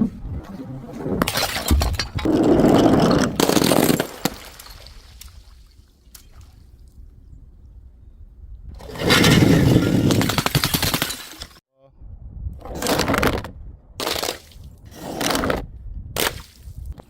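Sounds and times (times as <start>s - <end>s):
glass bottle smashing: 9.0s - 11.6s.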